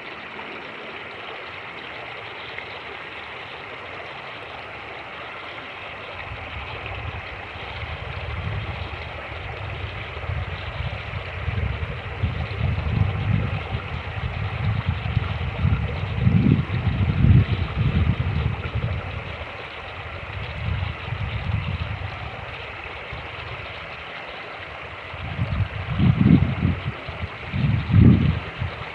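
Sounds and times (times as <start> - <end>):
creek rushing: 0.0 - 28.9
wind buffeting microphone: 6.1 - 28.9.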